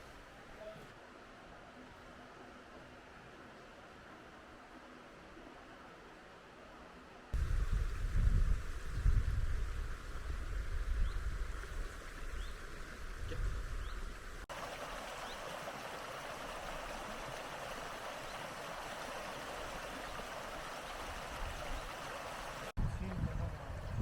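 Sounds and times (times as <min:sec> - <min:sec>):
wind buffeting microphone: 0:07.4 - 0:14.3, 0:22.7 - 0:24.0
flowing river rushing: 0:14.4 - 0:22.8.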